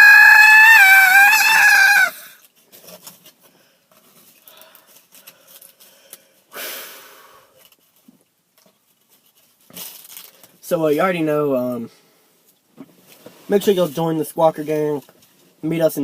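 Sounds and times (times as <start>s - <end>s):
man screaming high-pitched: 0.0s - 2.3s.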